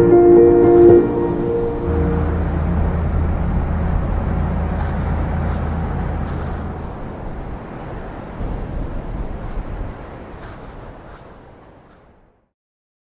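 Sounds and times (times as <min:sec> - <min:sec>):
tractor engine humming: 0:00.0 - 0:07.2
rough wind-like noise: 0:00.0 - 0:12.2.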